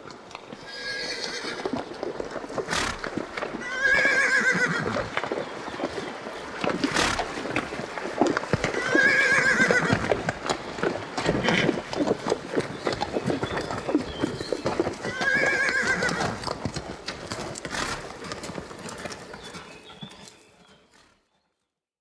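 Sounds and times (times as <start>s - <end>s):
horse hooves clip-clopping: 0.0s - 21.6s
horse whinny: 0.6s - 1.8s, 2.6s - 5.2s, 6.7s - 7.7s, 8.6s - 10.3s, 15.0s - 16.6s.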